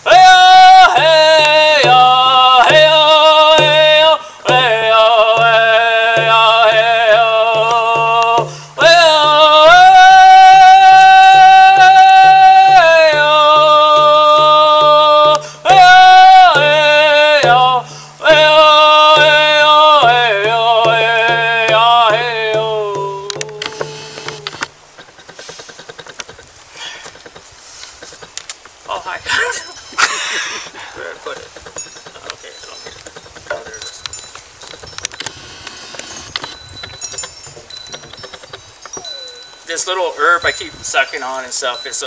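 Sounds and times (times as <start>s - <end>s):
man singing long sliding notes: 0.0s - 24.7s
steady low beat: 0.8s - 24.7s.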